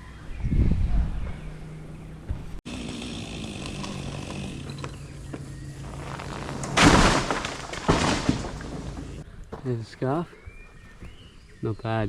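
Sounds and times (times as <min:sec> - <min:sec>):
loud burst of chainsaw noise: 0:02.7 - 0:04.9
chainsaw idling: 0:02.7 - 0:06.6.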